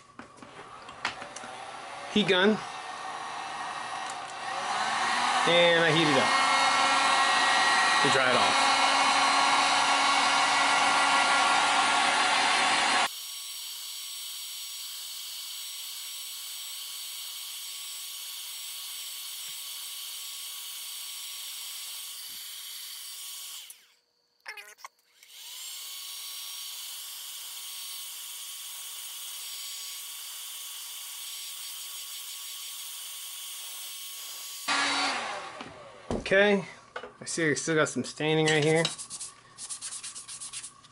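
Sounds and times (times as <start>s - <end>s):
heat gun blowing air: 0.7s - 17.0s, 34.2s - 36.2s.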